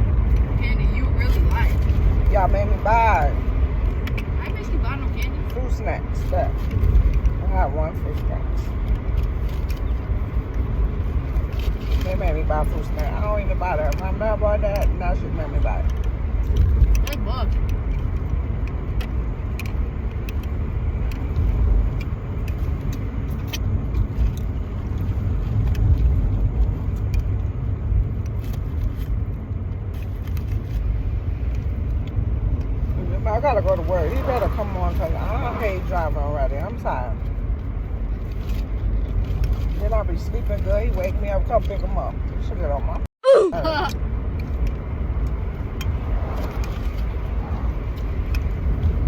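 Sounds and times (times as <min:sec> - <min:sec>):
car cabin rumble: 0:00.0 - 0:49.0
loud voice fragment: 0:43.2 - 0:43.9.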